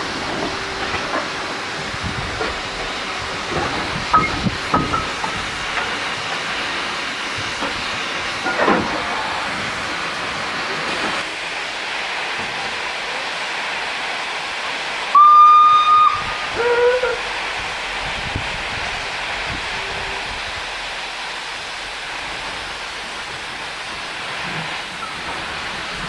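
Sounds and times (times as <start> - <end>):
hiss of escaping steam: 0.0 - 26.0
steam whistle blast: 15.1 - 17.4.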